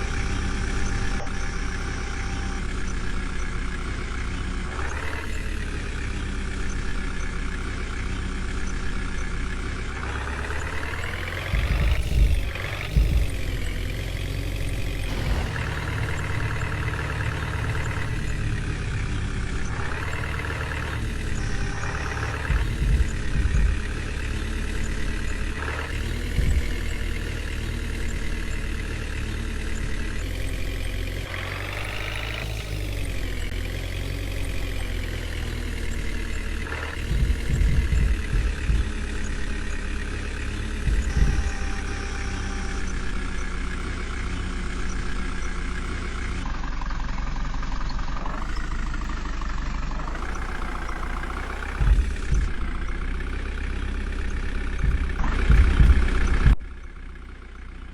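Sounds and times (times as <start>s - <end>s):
diesel engine running and revving: 0.0s - 57.9s
low thumps: 8.5s - 28.9s, 34.6s - 46.5s, 48.2s - 57.0s.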